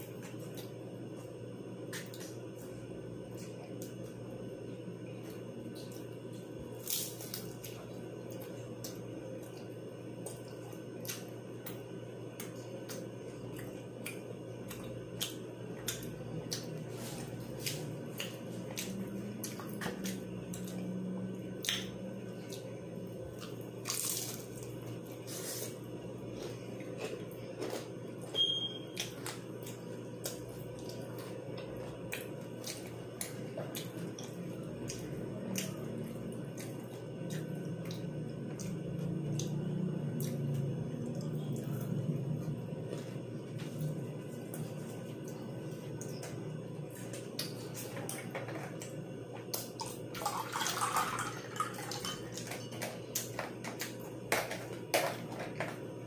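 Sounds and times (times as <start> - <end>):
low steady hum: 0.0 - 56.0
chewing crisp fried food: 5.1 - 48.2.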